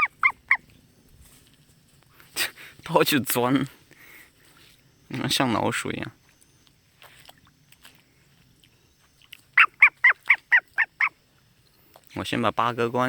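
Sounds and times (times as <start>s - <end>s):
starling harsh honking calls: 9.6s - 11.2s.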